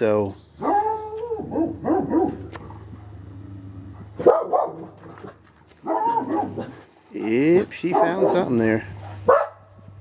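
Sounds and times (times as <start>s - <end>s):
dog barking: 0.6s - 2.4s, 4.2s - 9.7s.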